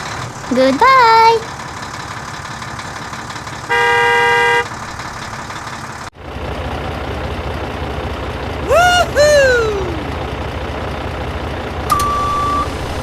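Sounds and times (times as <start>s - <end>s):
vehicle horn toot: 3.7s - 4.7s
engine running: 11.8s - 13.0s.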